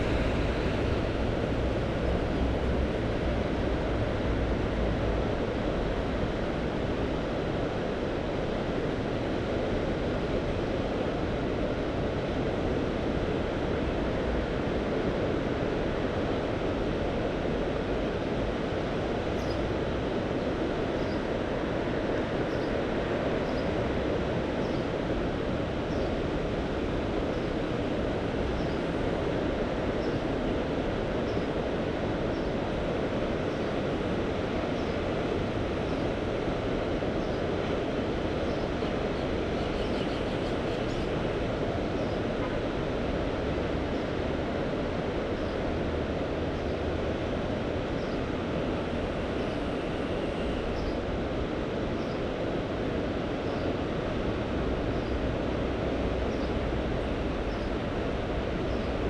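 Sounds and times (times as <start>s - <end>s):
sea surf: 0.0s - 59.0s
wind: 0.0s - 59.0s.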